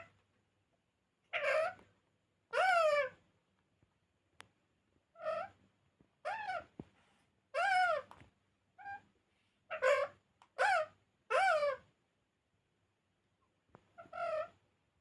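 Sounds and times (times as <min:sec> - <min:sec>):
parrot calls: 0:01.3 - 0:01.8, 0:02.5 - 0:03.2, 0:05.2 - 0:05.6, 0:06.2 - 0:06.7, 0:07.5 - 0:08.1, 0:09.7 - 0:11.9, 0:14.0 - 0:14.6.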